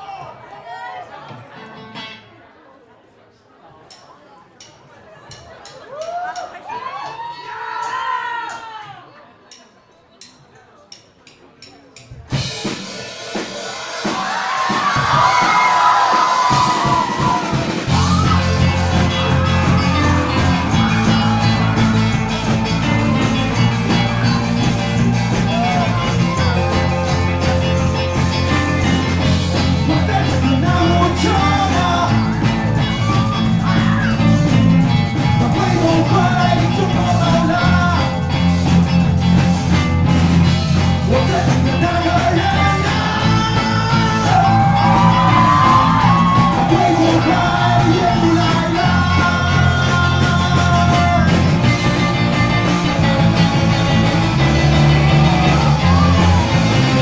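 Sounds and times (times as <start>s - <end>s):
live rock band playing: 12.3s - 57.0s.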